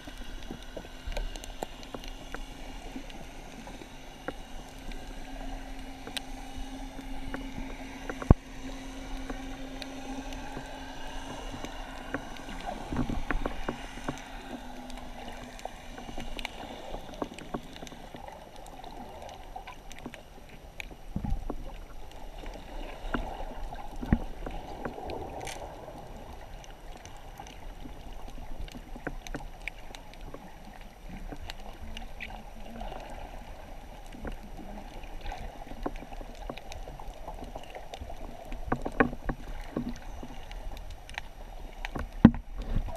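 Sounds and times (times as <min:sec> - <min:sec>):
underwater clicks and knocks: 0:00.0 - 0:33.1, 0:34.0 - 0:42.9
low underwater hum: 0:00.0 - 0:42.9
underwater rushing: 0:00.0 - 0:42.9.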